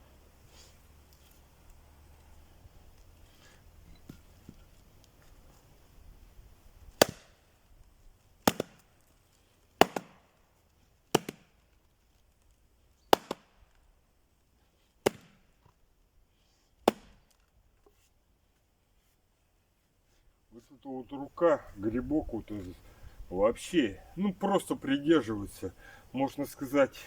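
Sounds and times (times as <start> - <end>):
axe chopping wood: 6.9 - 7.5, 8.4 - 9.0, 9.8 - 10.3, 11.1 - 11.6, 13.1 - 13.6, 15.0 - 15.5, 16.8 - 17.4.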